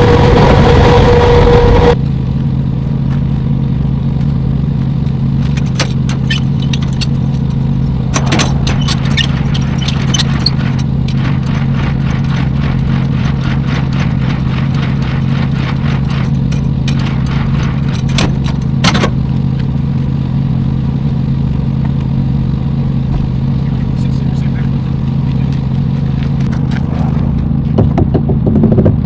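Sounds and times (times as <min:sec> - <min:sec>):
truck engine drone: 0:00.0 - 0:29.0
rapid clicking rattles: 0:05.4 - 0:19.4
sharp knocks: 0:08.1 - 0:19.2.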